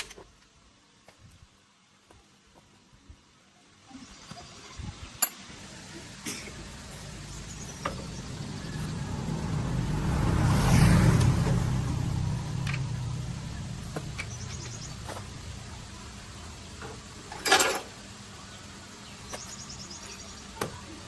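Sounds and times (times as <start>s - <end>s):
engine rumble: 3.9s - 21.0s.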